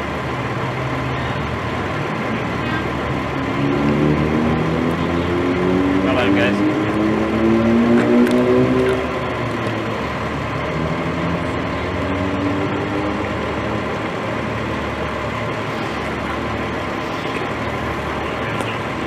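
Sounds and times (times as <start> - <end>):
rising engine tone: 0.0 - 19.0
vehicle engine idling: 0.0 - 19.0.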